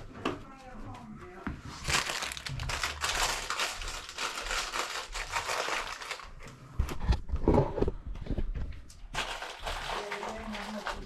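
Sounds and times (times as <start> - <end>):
crinkling rustling handling noise: 0.0 - 7.1, 8.8 - 11.0.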